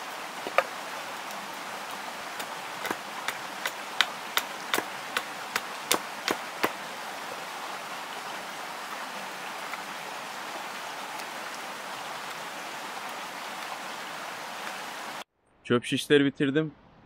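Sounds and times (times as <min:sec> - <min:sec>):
steady hiss: 0:00.0 - 0:15.2.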